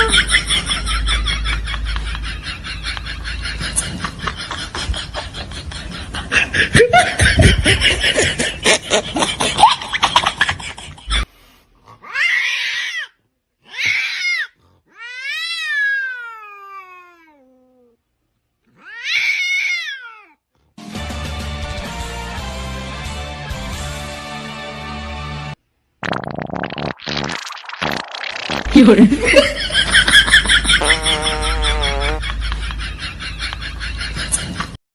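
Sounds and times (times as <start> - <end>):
cat meowing: 18.8 - 20.4.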